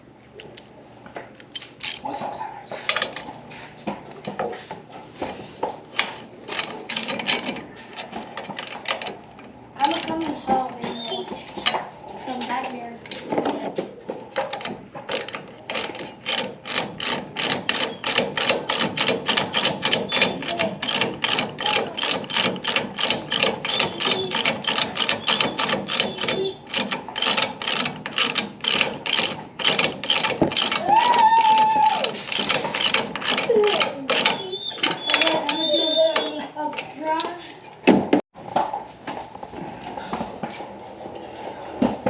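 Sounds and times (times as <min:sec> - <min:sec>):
ratchet wrench clicking: 0:06.5 - 0:07.5, 0:14.5 - 0:30.8, 0:31.4 - 0:34.4.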